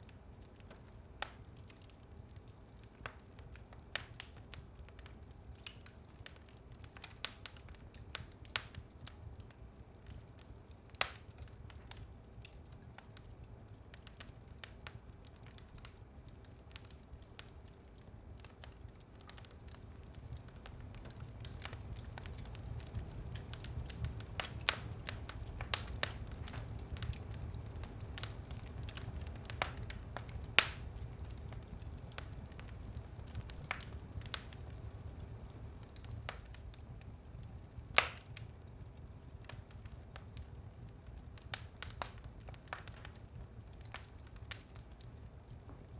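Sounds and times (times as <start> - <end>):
low rumble of flames: 0.0 - 45.9
wood fire crackling and popping: 0.0 - 45.9.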